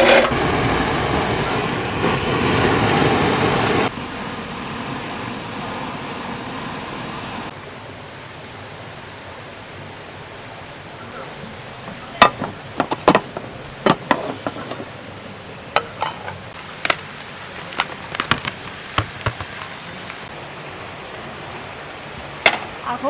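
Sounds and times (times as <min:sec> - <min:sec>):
stream rushing: 0:00.0 - 0:23.0
cookware clicking and knocking: 0:12.2 - 0:14.9, 0:15.8 - 0:16.4.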